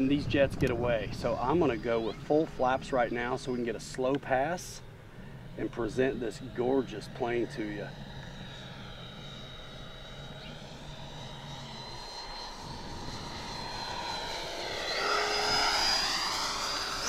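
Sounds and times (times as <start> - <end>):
model jet fan whine: 0.0 - 17.0.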